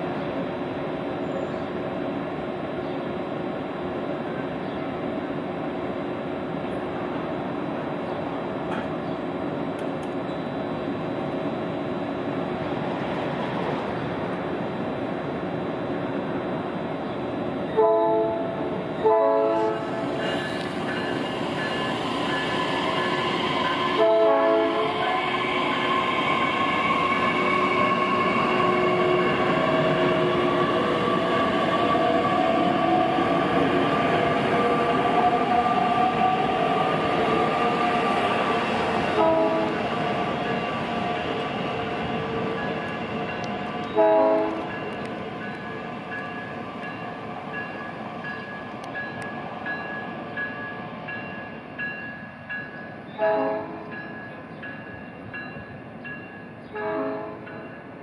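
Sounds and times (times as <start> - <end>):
electric train rumbling past: 0.0 - 58.0
train whine: 0.0 - 58.0
train horn blasts: 17.8 - 20.0, 23.9 - 25.2, 27.5 - 30.4, 39.1 - 39.8, 43.8 - 45.0, 53.2 - 53.9, 56.7 - 57.5.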